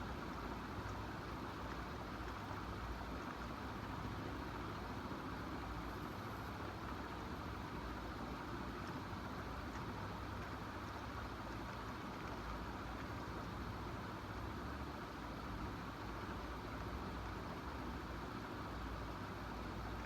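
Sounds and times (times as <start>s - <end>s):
steady hum and hiss: 0.0s - 20.0s
faint ticks: 0.3s - 4.8s, 8.2s - 13.8s.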